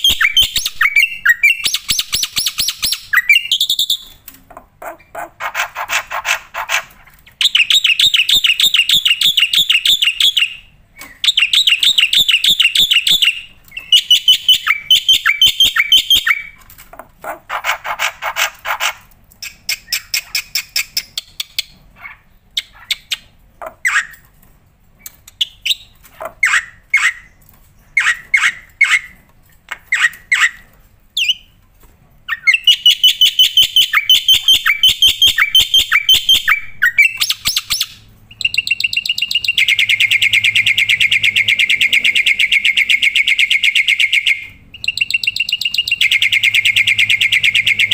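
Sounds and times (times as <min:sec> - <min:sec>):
starling sharp calls: 0:00.0 - 0:04.1, 0:04.8 - 0:16.6, 0:32.3 - 0:47.9
starling singing trills: 0:00.0 - 0:04.2, 0:05.4 - 0:16.6, 0:32.3 - 0:47.9.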